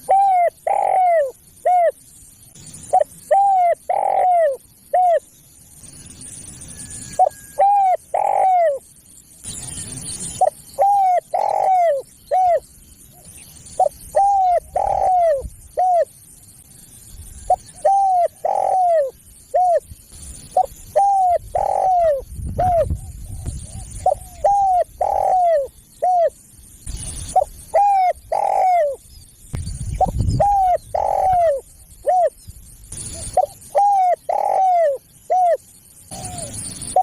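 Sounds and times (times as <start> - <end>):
dove cooing: 0.0 - 2.0, 2.8 - 5.3, 7.1 - 8.8, 10.2 - 16.1, 17.5 - 19.8, 20.5 - 26.4, 27.3 - 29.0, 30.0 - 32.4, 33.0 - 37.0.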